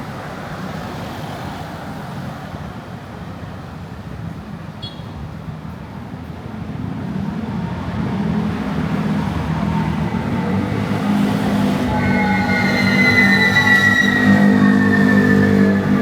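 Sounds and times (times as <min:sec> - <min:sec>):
train rumble: 0:06.0 - 0:16.0
squealing train wheels: 0:07.5 - 0:16.0.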